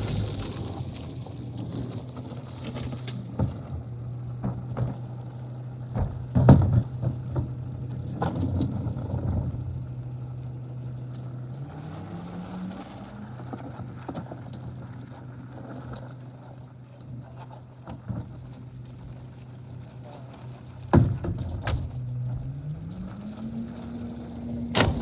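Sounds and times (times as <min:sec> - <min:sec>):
knocks and thumps: 0:05.9 - 0:07.6, 0:24.8 - 0:25.0
garbage truck engine idling: 0:23.9 - 0:25.0.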